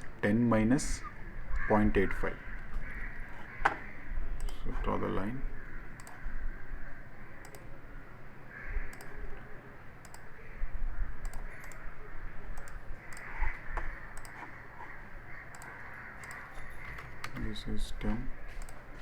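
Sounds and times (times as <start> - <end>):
room hum: 0.0 - 19.0
computer mouse clicking: 3.4 - 4.7, 5.8 - 6.3, 7.4 - 7.8, 8.8 - 10.3, 11.2 - 11.9, 12.5 - 19.0.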